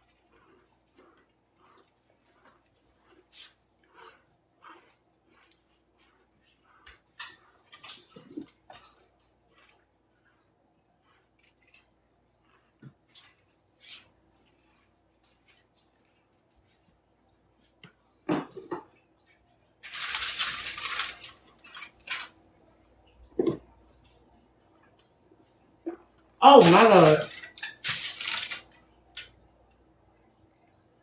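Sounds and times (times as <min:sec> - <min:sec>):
cornstarch crunching and crumbling: 0:00.0 - 0:17.0, 0:19.8 - 0:22.4.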